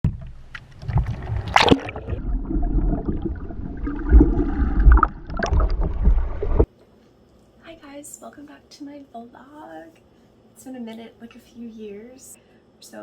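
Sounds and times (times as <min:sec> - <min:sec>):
low rumble: 0:00.1 - 0:06.7.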